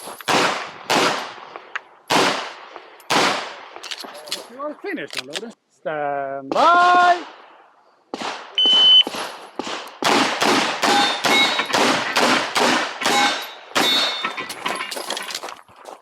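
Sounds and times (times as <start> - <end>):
rapid pistol shots: 0.3 - 3.8, 8.2 - 14.2
shot timer beep: 8.6 - 9.1, 10.9 - 11.7.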